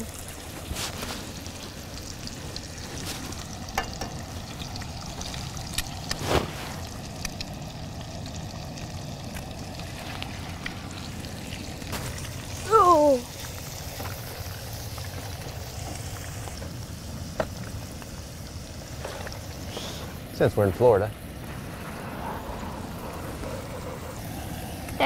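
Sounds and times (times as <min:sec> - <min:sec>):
food sizzling in a skillet: 0:00.0 - 0:25.0
egg cracked into hot pan: 0:03.7 - 0:04.2.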